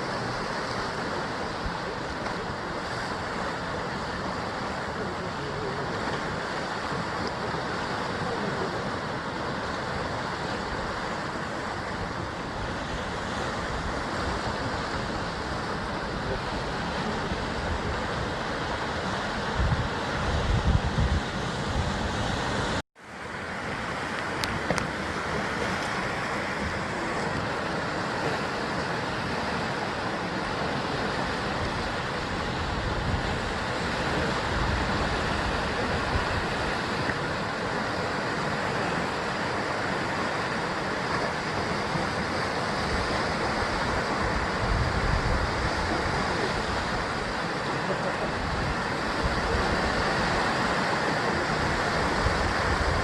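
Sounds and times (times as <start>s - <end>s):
sea waves against cliffs: 0.0s - 53.0s.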